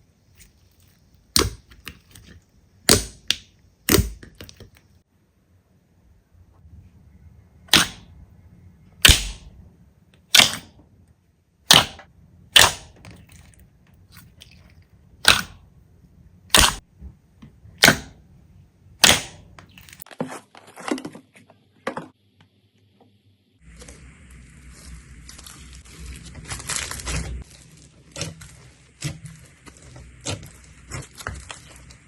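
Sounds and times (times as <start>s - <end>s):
slime crackling: 23.7s - 32.0s.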